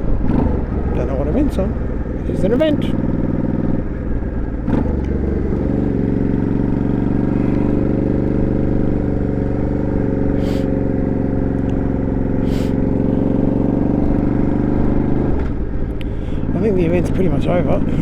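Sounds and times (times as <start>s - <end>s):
motorcycle engine running: 0.0s - 18.0s
short hisses: 10.4s - 10.7s, 12.4s - 12.8s.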